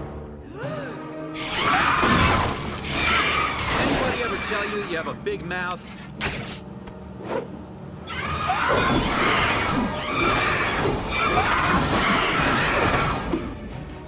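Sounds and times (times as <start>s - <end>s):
cartoon shrieking scream: 1.4s - 4.4s, 8.1s - 13.3s.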